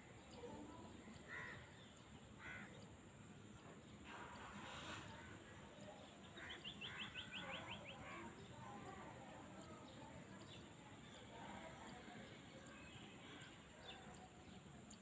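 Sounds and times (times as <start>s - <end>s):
faint outdoor background: 0.0s - 15.0s
soft bird calls: 3.9s - 8.6s.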